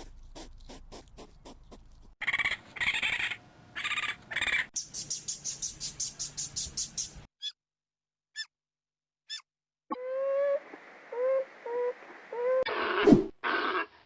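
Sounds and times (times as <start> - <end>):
fast high chirps: 4.8 - 7.6.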